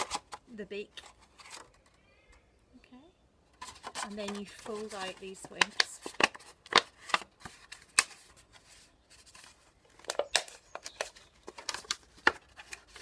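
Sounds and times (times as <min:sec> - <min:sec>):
plastic bottle crackling: 0:03.5 - 0:08.6, 0:09.2 - 0:13.0.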